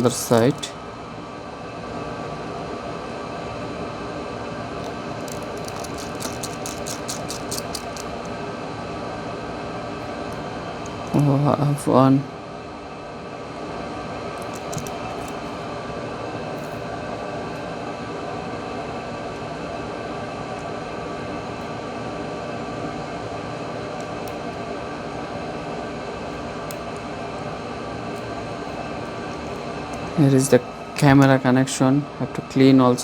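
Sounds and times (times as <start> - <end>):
small motor whirring: 5.2 - 8.3.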